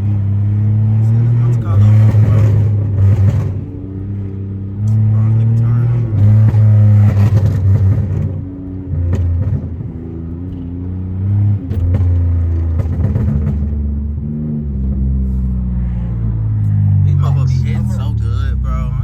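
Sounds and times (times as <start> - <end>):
car engine accelerating: 0.0 - 19.0
exhaust crackles and pops: 11.7 - 13.8.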